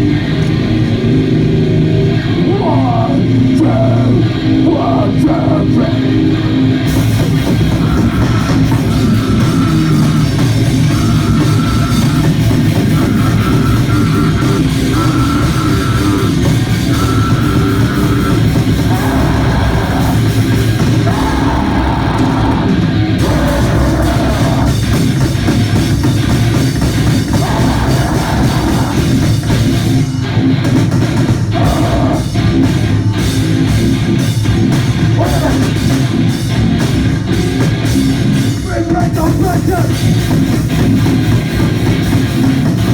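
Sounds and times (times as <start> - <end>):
punk band playing live: 0.0 - 42.9
rapid drum hits: 6.9 - 42.9
shouted vocals: 8.0 - 25.1, 27.2 - 29.6, 31.5 - 32.4, 35.1 - 35.8.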